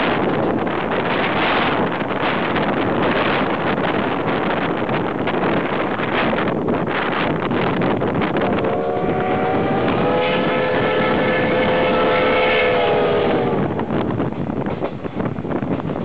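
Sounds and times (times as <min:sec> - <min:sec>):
wind buffeting microphone: 0:00.0 - 0:16.0
steam locomotive whistle blast: 0:08.5 - 0:13.8.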